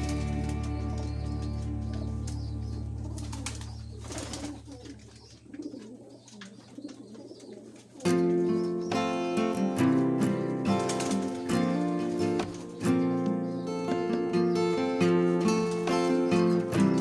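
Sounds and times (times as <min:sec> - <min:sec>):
background music: 0:00.0 - 0:04.6, 0:08.1 - 0:17.0
plucked guitar music: 0:00.0 - 0:04.7, 0:08.0 - 0:17.0
pigeons cooing: 0:00.0 - 0:17.0.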